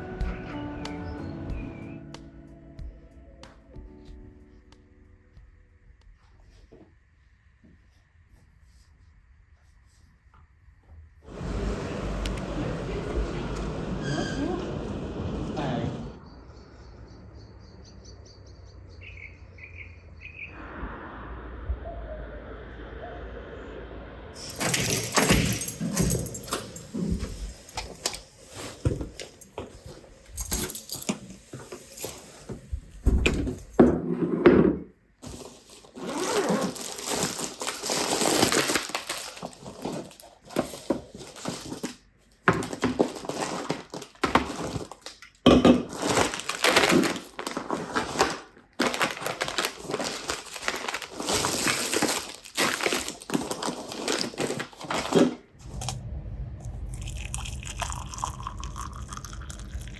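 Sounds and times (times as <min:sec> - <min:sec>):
knocks and clinks: 0:24.4 - 0:32.5
rustling and crinkling: 0:24.4 - 0:34.2, 0:35.2 - 0:56.0.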